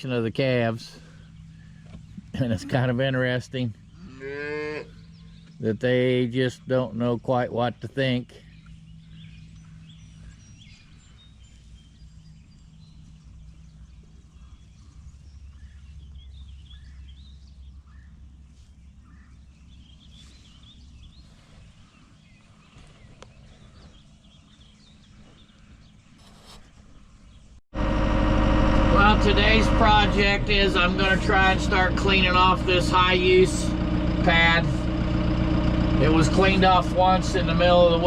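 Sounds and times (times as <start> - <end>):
birds chirping: 0.0 - 38.0
low rumble: 27.8 - 38.0.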